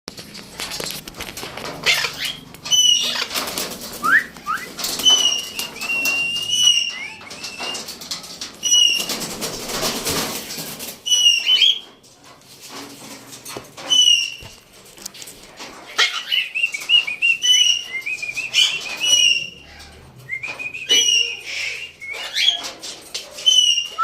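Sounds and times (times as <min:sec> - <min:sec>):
wing flapping and rustling: 0:00.1 - 0:21.4, 0:22.0 - 0:24.0
parrots whistling calls: 0:01.8 - 0:03.3, 0:04.0 - 0:07.9, 0:11.1 - 0:11.8, 0:13.9 - 0:14.4, 0:16.0 - 0:22.7, 0:23.4 - 0:24.0.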